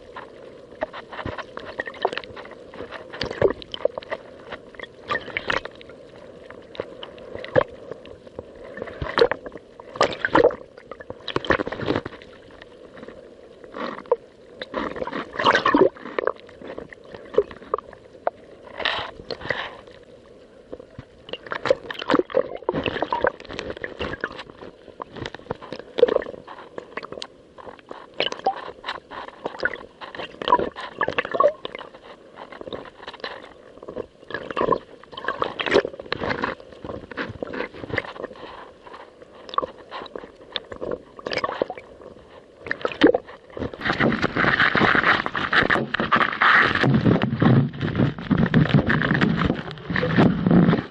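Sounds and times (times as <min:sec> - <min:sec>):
rush of water: 0:00.0 - 0:50.9
waves slapping against kayak hull: 0:42.8 - 0:50.9.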